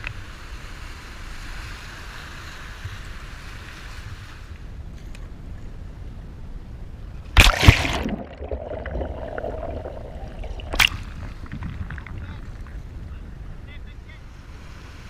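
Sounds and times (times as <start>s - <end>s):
water splashing at kayak: 7.4s - 12.8s.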